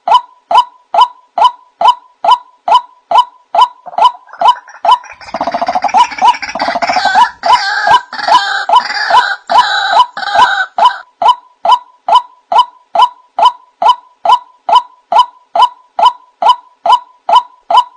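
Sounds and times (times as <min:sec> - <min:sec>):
waterhen calls: 0:03.1 - 0:12.2
harsh chorus of bird calls: 0:03.8 - 0:11.0.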